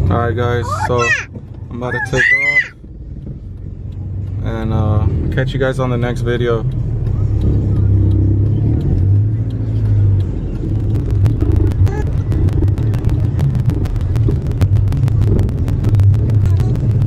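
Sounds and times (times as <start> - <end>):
car engine low rumble: 0.0 - 17.0
rapid sharp clicks: 9.0 - 17.0.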